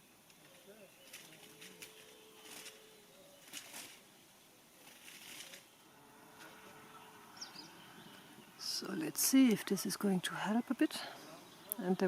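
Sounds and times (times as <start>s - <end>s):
soft rustles: 0.3s - 6.7s.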